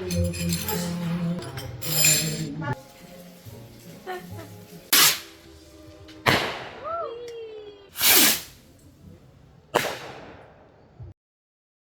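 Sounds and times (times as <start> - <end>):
loud whooshing bursts: 8.0 - 8.6.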